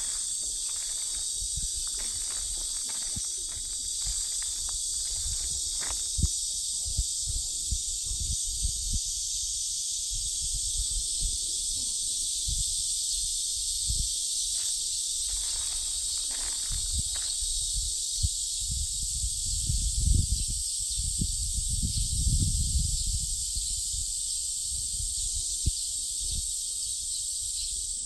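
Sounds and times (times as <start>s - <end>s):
cicadas buzzing: 0.0s - 28.0s.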